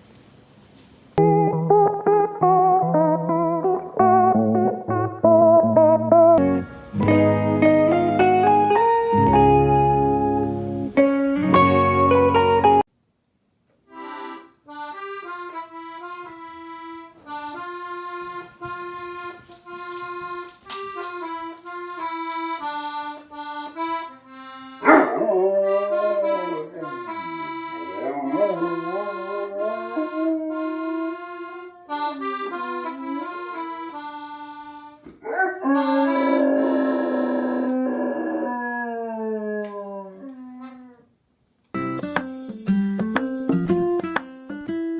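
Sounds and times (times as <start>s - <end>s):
slow free-reed instrument melody: 1.2s - 12.9s, 13.9s - 41.0s, 41.7s - 44.9s
dog howling: 24.8s - 33.2s, 35.2s - 41.1s.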